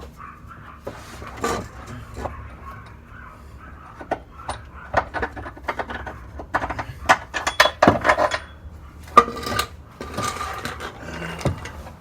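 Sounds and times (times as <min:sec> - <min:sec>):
metal tools clinking and clanking: 0:03.9 - 0:12.0
loud ringing metal clank: 0:07.3 - 0:09.7.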